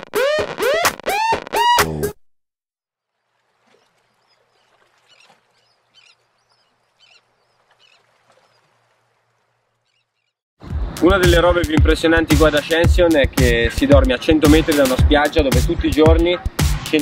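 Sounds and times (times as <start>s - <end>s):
faint bird-like chirps: 3.1s - 8.7s.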